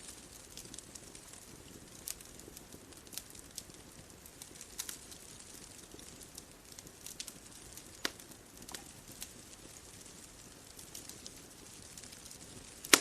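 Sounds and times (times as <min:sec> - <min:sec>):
bonfire crackling and popping: 0:00.0 - 0:13.0
faint steady hiss: 0:00.0 - 0:13.0.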